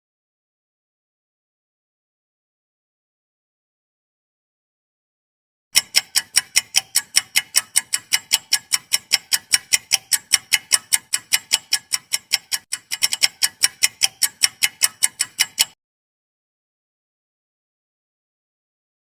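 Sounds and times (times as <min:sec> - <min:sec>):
countdown timer ticking: 0:05.8 - 0:15.8.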